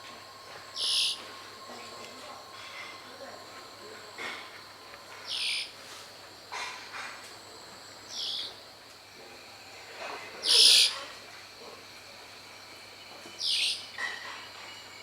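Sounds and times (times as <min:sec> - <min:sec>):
bird giving harsh buzzy calls: 0:00.8 - 0:01.2.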